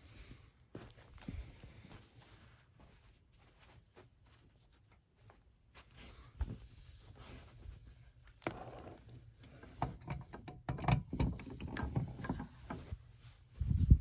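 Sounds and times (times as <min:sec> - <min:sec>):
objects knocking and clicking: 0:09.8 - 0:12.9.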